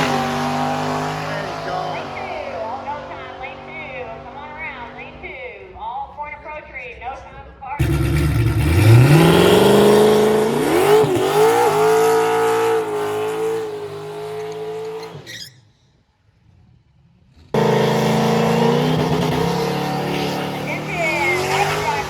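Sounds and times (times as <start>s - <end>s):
loud engine: 0.0s - 4.0s, 7.8s - 15.1s, 17.5s - 22.0s
drag racing engine revving: 0.0s - 4.3s, 7.8s - 15.3s, 17.5s - 22.0s.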